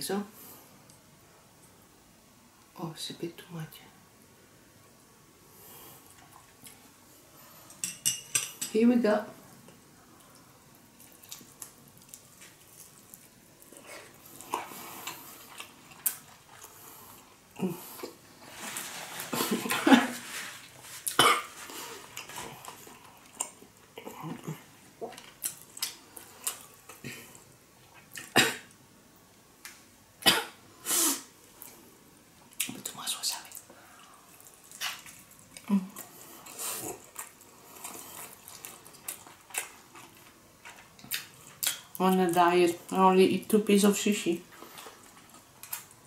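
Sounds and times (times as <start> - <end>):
chewing and lip-smacking: 10.2 - 17.3, 25.0 - 27.0, 34.3 - 42.4
person coughing: 21.2 - 21.5.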